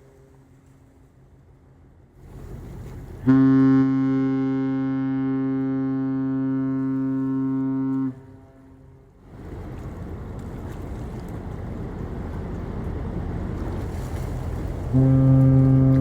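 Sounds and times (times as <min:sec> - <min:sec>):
ship's horn blast: 0:03.2 - 0:09.2, 0:14.8 - 0:16.0.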